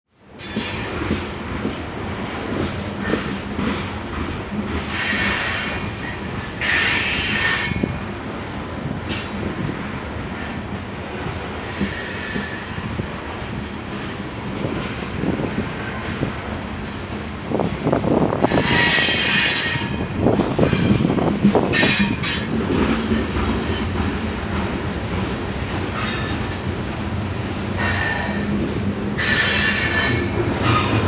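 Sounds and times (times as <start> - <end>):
train wheels rumbling on rail: 0.1 - 31.0
train wheels squealing: 0.4 - 1.1, 4.9 - 7.9, 11.6 - 14.1, 16.2 - 17.0, 18.4 - 21.1, 25.9 - 26.5, 27.8 - 31.0.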